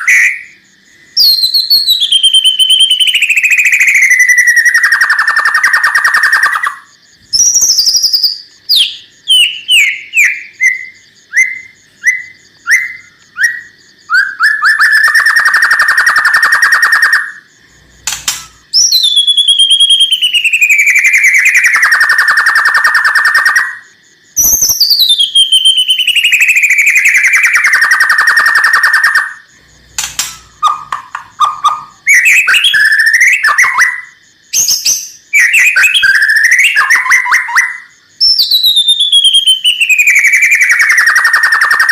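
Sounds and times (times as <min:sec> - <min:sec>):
bird singing harsh rattling notes: 0:00.0 - 0:41.9
bird chips: 0:18.1 - 0:18.7, 0:30.0 - 0:32.0.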